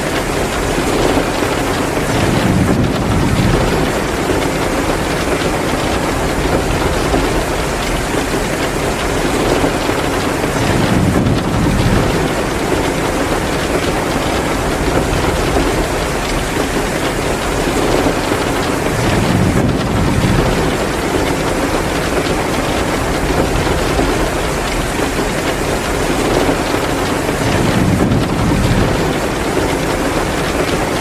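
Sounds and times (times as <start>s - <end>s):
heavy rain: 0.0s - 31.0s
wood fire crackling: 0.1s - 31.0s
low rumbles: 2.1s - 9.0s, 10.6s - 25.4s.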